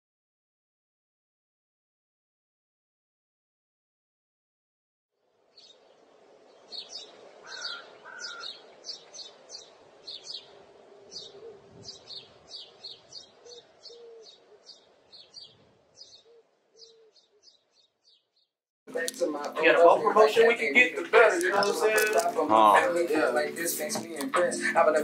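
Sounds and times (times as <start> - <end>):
small birds chirping: 5.4 - 24.8.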